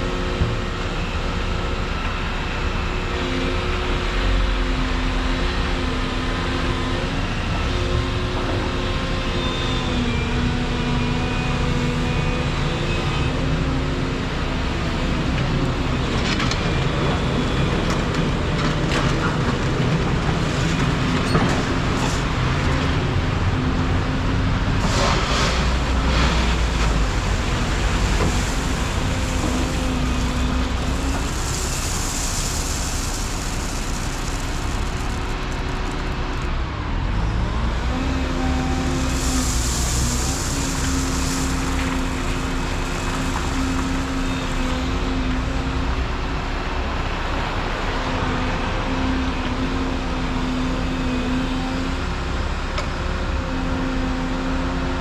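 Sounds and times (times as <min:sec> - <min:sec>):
excavator diesel engine under load: 0:00.0 - 0:55.0
high hissing: 0:25.7 - 0:36.0, 0:38.0 - 0:45.1.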